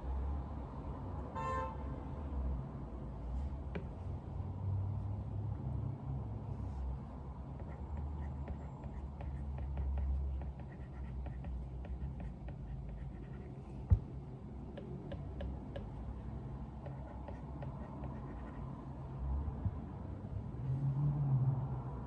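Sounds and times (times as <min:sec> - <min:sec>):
pencil scratching on paper: 0:07.6 - 0:13.8, 0:16.8 - 0:18.6.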